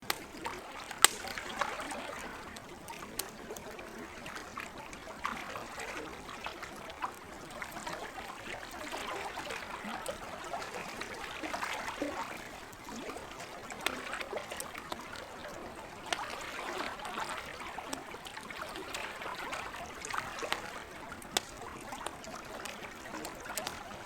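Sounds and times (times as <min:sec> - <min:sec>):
campfire crackling and popping: 0:00.0 - 0:04.2, 0:07.0 - 0:24.0
lake water trickling: 0:00.0 - 0:24.0.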